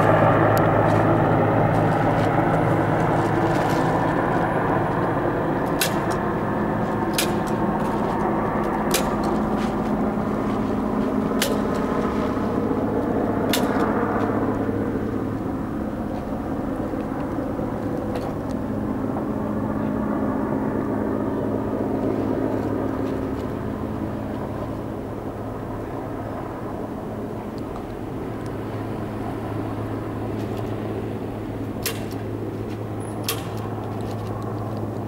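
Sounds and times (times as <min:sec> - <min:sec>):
helicopter drone: 0:00.0 - 0:35.0
sharp clicks: 0:08.6 - 0:09.4, 0:13.5 - 0:13.9.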